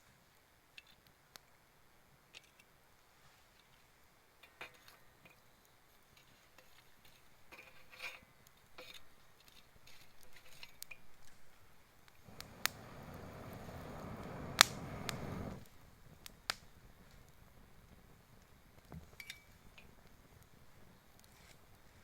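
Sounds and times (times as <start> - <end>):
wood fire crackling: 12.1 - 19.0
sharp pops and snaps: 12.2 - 15.7.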